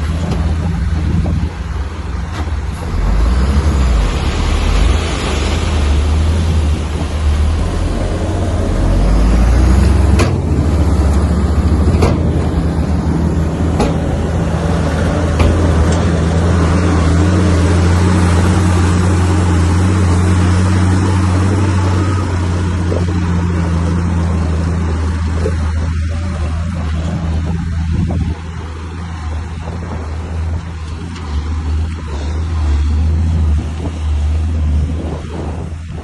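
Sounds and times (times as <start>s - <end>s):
heavy diesel machine droning: 0.0s - 36.0s
sharp knocks: 10.0s - 10.9s, 11.8s - 13.0s, 13.6s - 14.6s, 15.2s - 16.2s.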